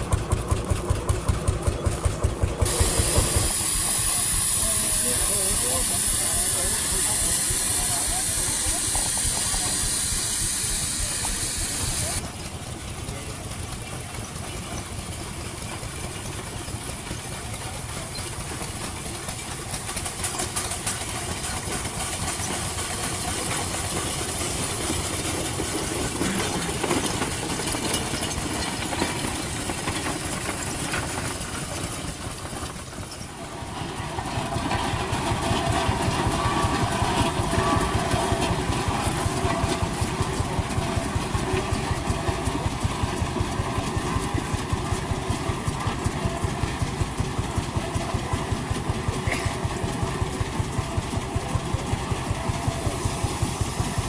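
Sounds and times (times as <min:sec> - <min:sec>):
engine firing rapidly: 0:00.0 - 0:12.2
old engines running: 0:00.0 - 0:54.0.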